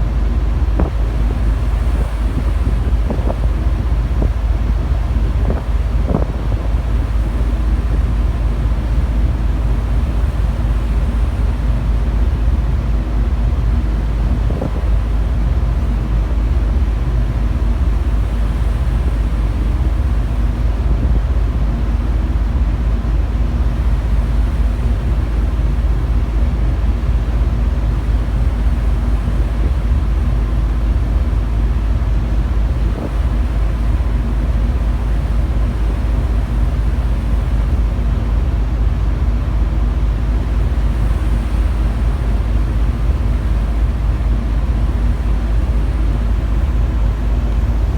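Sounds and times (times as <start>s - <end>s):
wind buffeting microphone: 0.0s - 12.3s, 13.7s - 16.2s, 28.1s - 37.9s
ferry engine drone: 0.0s - 47.9s.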